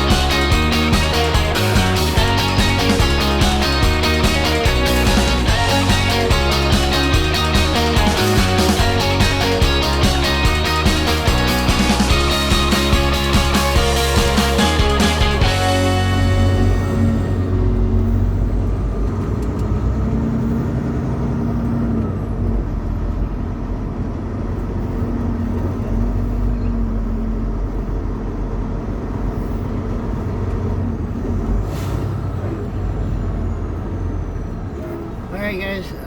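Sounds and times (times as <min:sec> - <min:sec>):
road rumble: 0:00.0 - 0:36.0
truck engine drone: 0:00.0 - 0:36.0.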